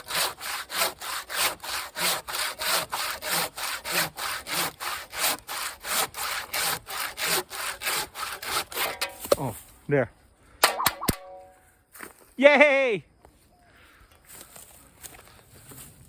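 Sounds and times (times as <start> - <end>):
hand saw cutting wood: 0.0 - 9.4.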